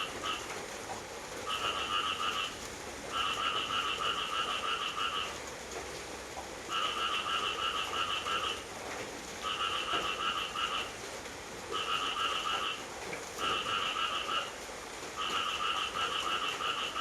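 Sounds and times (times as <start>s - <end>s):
rain hiss: 0.0s - 17.0s
frog trilling: 1.5s - 2.5s, 13.4s - 14.5s, 15.2s - 17.0s.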